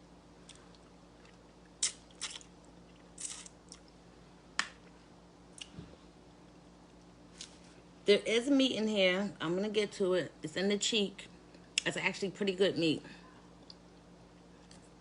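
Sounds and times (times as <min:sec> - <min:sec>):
wet chewing and sucking: 0:00.5 - 0:04.0.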